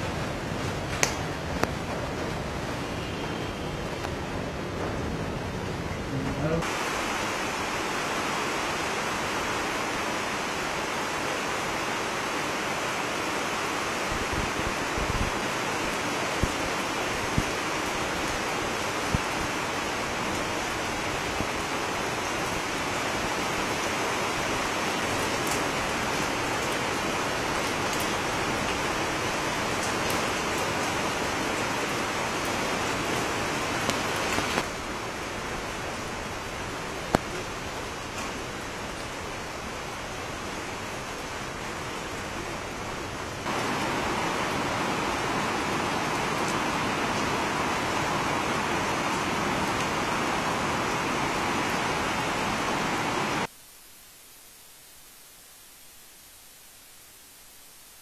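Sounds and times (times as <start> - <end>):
heavy rain hiss: 0.0 - 58.0
rain drop taps: 0.9 - 2.3, 37.1 - 37.4.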